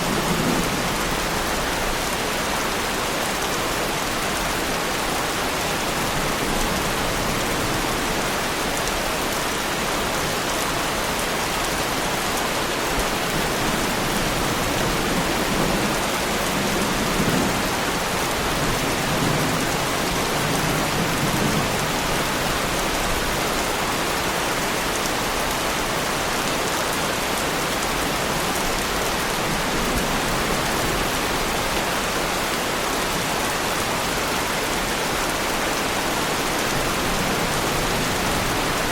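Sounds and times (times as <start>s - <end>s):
distant thunder rumble: 0.0s - 2.0s
heavy rain on a car: 0.0s - 38.9s.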